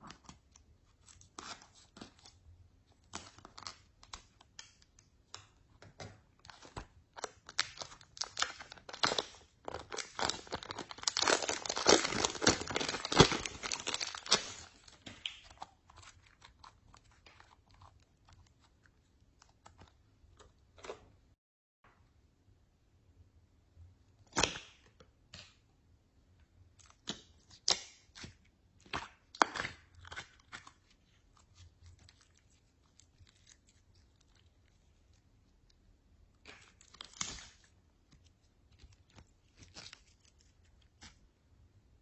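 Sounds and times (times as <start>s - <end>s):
slime crackling and popping: 6.4s - 18.6s.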